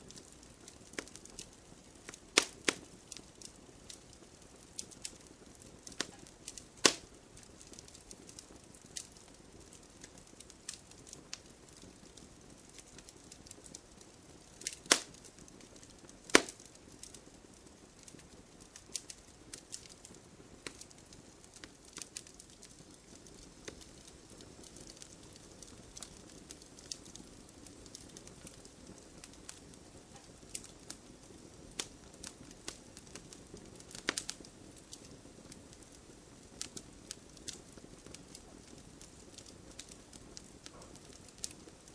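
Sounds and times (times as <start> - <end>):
wood fire crackling: 0.0 - 41.9
sharp loud fire cracks: 6.0 - 7.1, 14.6 - 15.2, 16.2 - 16.7.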